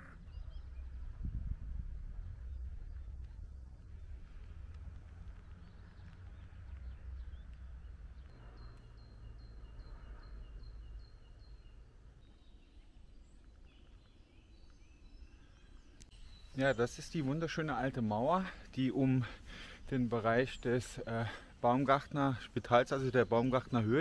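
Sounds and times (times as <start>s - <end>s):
low steady rumble: 0.0s - 8.8s
songbird singing repeated notes: 0.0s - 24.0s.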